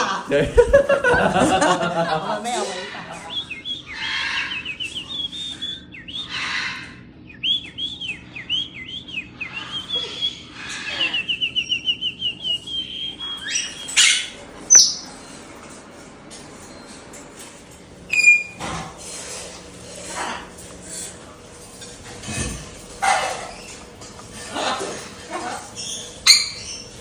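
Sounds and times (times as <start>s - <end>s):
parrots whistling and chirping: 0.4s - 15.4s, 18.1s - 27.0s
harsh hissy parrot calls: 2.4s - 7.0s, 9.3s - 15.1s, 19.2s - 21.3s, 22.6s - 27.0s.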